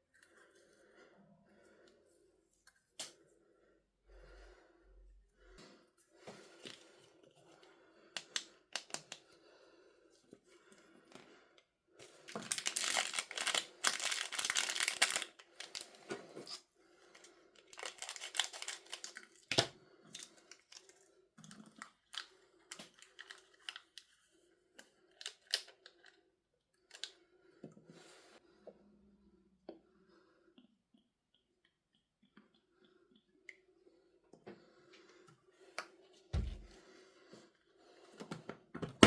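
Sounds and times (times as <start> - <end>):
packaging tearing and crinkling: 12.3 - 16.0, 17.8 - 19.6.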